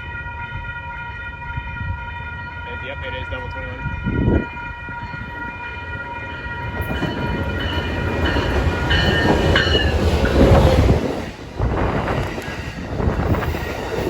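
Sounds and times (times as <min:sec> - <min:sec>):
train horn chord: 0:00.0 - 0:09.0
train wheels rumbling: 0:00.0 - 0:14.0.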